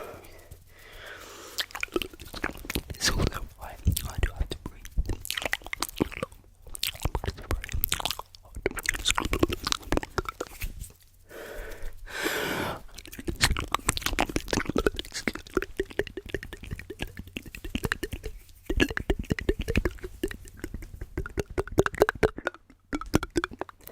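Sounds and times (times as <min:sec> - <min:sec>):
steady hiss: 0:00.0 - 0:05.0, 0:09.1 - 0:13.1
mouth clicks and pops: 0:00.0 - 0:23.9
tapping: 0:14.6 - 0:23.9.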